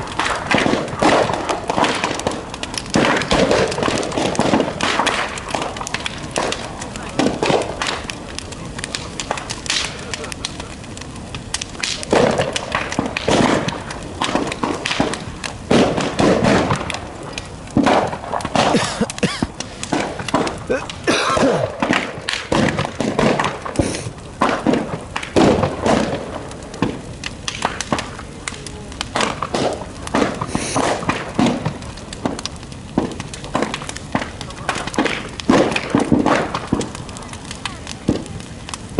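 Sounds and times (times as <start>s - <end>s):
bonfire crackling and popping: 0.0s - 38.9s
murmur of voices: 5.6s - 15.6s, 26.9s - 32.3s, 33.1s - 38.9s.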